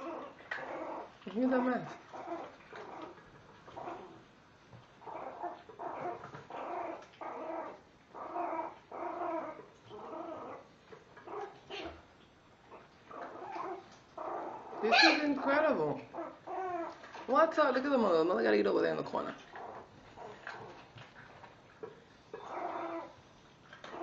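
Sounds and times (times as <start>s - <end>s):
puppy growling: 0.0s - 4.3s, 4.9s - 17.3s, 19.1s - 24.0s.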